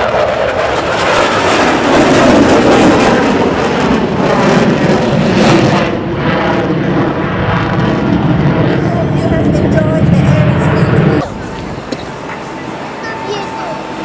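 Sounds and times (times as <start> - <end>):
aircraft engine flying past: 0.0 - 14.0.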